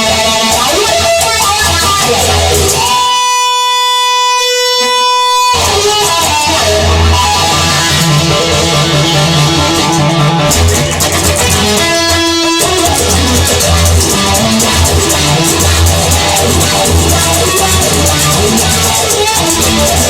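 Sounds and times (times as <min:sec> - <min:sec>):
instrumental guitar band music: 0:00.0 - 0:20.0
long held guitar note: 0:06.5 - 0:19.7.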